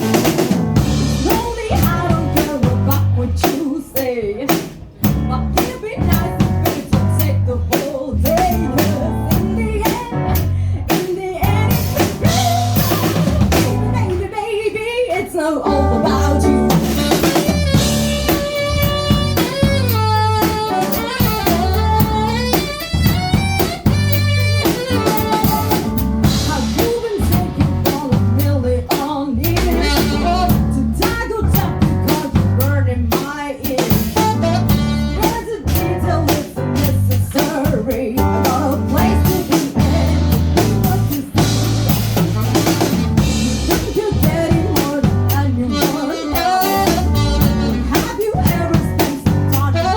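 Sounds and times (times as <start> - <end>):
bass drum: 0.0 - 3.5, 5.0 - 14.3, 15.7 - 33.0, 33.9 - 49.9
jazz-funk band playing: 0.0 - 49.9.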